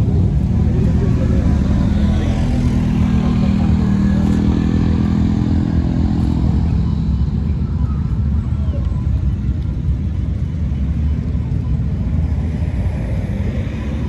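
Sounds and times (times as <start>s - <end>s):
vehicle engine running: 0.0s - 8.6s
constant low rumble: 0.0s - 14.0s.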